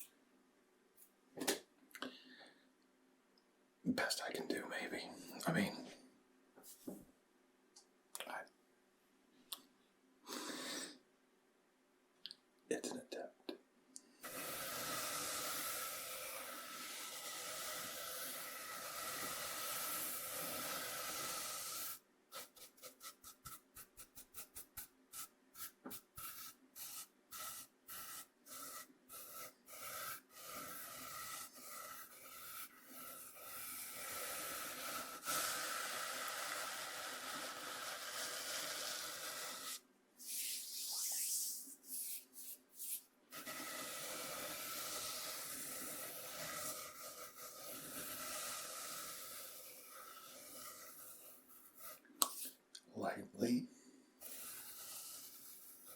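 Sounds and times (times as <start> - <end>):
cornmeal scraped on bamboo board: 14.3 - 41.0, 42.8 - 52.5, 54.2 - 55.9.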